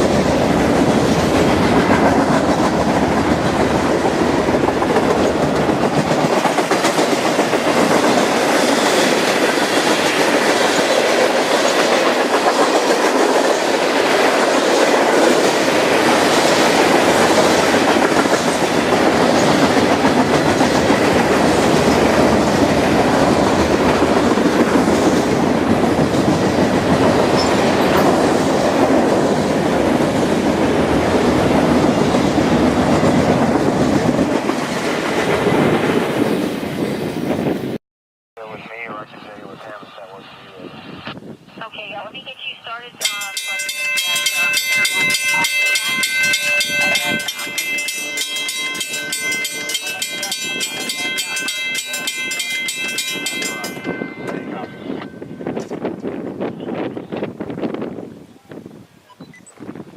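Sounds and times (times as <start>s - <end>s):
train wheels clacking on rails: 0.0s - 36.4s, 43.0s - 56.2s
deep train rumble: 0.0s - 37.8s, 38.4s - 58.2s.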